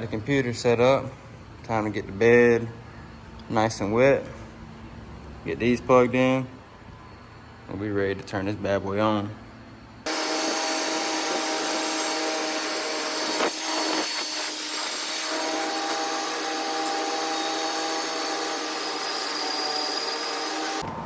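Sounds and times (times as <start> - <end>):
plasma cutter whirring and hissing: 10.1 - 20.8.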